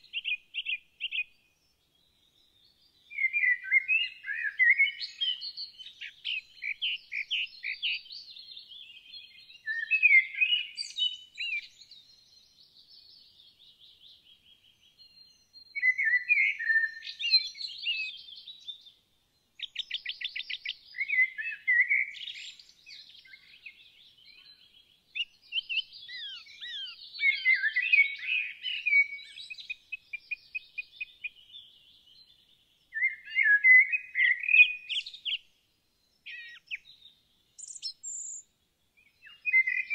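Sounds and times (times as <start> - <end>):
songbirds chirping and warbling: 0.0 - 39.9
bird trill: 19.6 - 31.7, 36.2 - 37.0, 37.6 - 38.4, 39.2 - 39.9.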